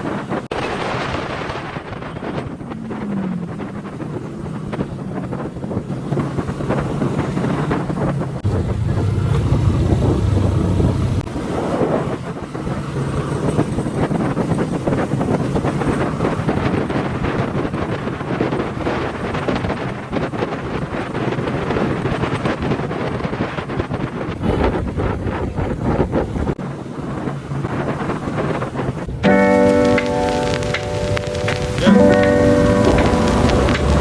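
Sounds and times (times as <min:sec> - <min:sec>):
wind buffeting microphone: 0:00.0 - 0:34.0
motorcycle engine running: 0:02.0 - 0:11.4, 0:29.5 - 0:34.0.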